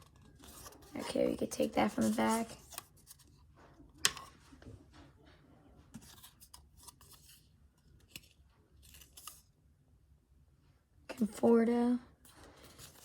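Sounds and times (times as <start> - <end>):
cards rustling: 0.0 - 3.4, 6.0 - 9.5, 12.2 - 13.0.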